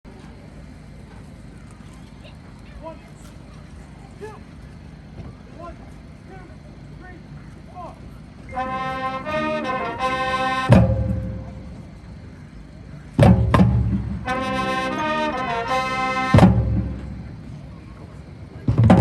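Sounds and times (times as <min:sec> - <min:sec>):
marching band brass chords: 0:03.6 - 0:19.0
drum hits: 0:10.7 - 0:11.8, 0:13.2 - 0:14.6, 0:16.4 - 0:17.3.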